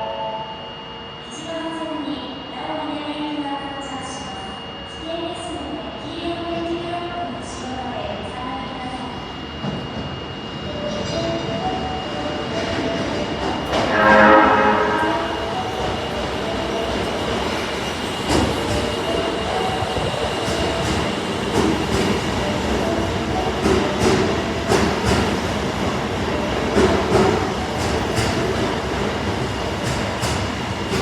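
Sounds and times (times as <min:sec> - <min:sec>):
steady high tone: 0:00.0 - 0:27.7.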